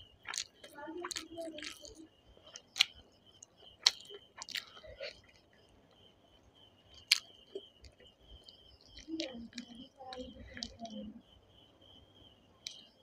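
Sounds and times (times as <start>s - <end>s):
wet chewing: 0.2s - 5.6s, 6.9s - 11.0s, 12.6s - 12.9s
sharp mouth clicks and smacks: 0.3s - 3.0s, 3.8s - 5.5s, 7.0s - 10.9s, 12.6s - 12.9s.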